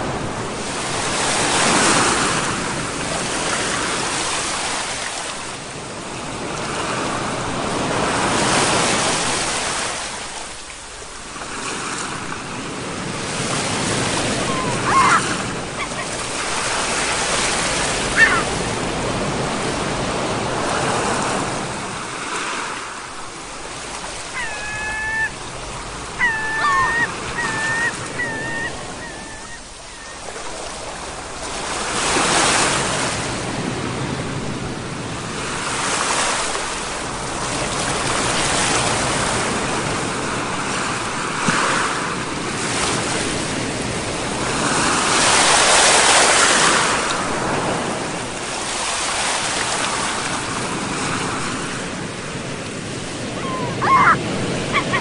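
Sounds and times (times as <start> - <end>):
ocean waves breaking: 0.0 - 55.0
short animal calls: 14.4 - 16.1, 18.1 - 18.5, 24.3 - 25.4, 26.2 - 30.3, 53.4 - 55.0.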